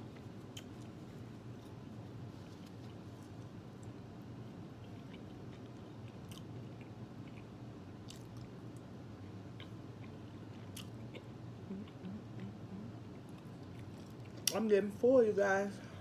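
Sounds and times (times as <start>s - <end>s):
person chewing: 0.0s - 4.0s, 4.8s - 14.6s
wet mouth clicks: 10.8s - 12.6s.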